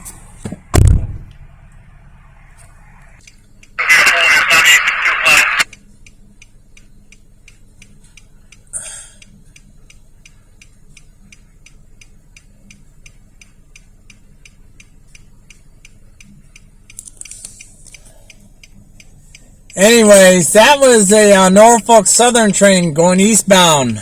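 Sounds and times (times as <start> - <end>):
rapid mechanical ticking: 5.6 - 24.0.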